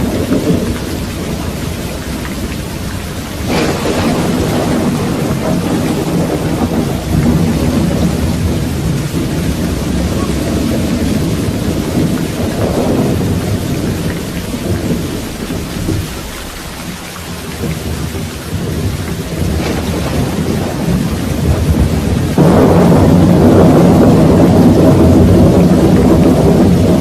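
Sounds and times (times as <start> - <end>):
loud thunder peal: 0.0 - 17.0, 17.6 - 27.0
rolling thunder: 0.0 - 27.0
steady rain: 0.0 - 27.0.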